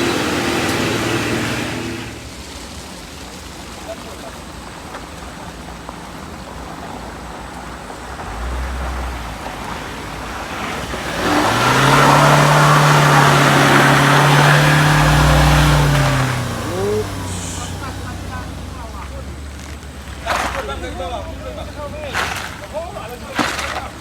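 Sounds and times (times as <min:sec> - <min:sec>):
engine roaring at high revs: 0:00.0 - 0:02.9, 0:07.8 - 0:24.0.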